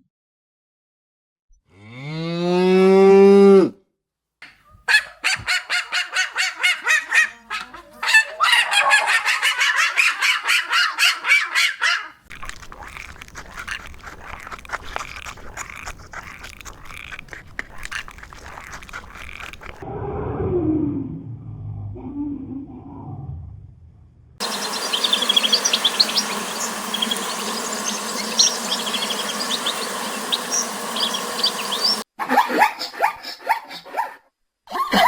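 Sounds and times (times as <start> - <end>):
flock chatter: 24.4 - 32.0
rapid honking calls: 24.4 - 32.0
rising animal call: 24.4 - 32.0.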